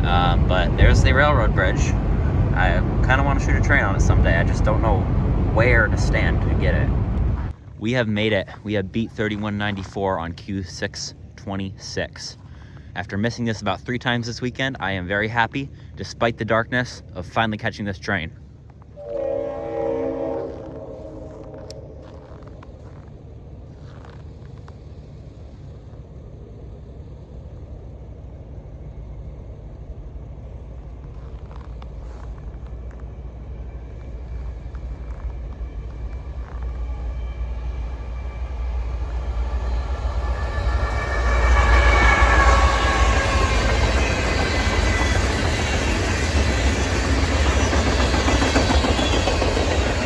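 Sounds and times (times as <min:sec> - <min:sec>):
train wheels on rails: 0:00.0 - 0:07.6, 0:18.7 - 0:50.0
diesel locomotive rumble: 0:00.0 - 0:17.6, 0:18.2 - 0:50.0.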